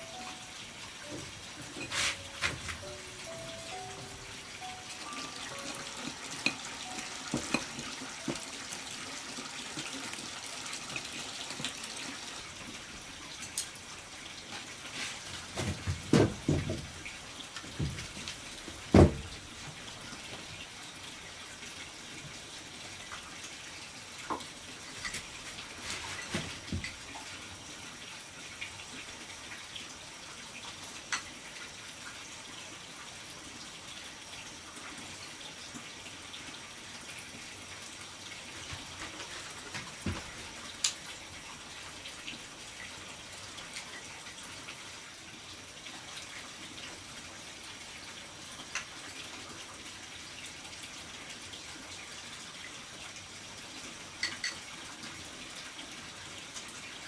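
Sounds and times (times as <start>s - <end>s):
trickle of running water: 0.0s - 57.0s.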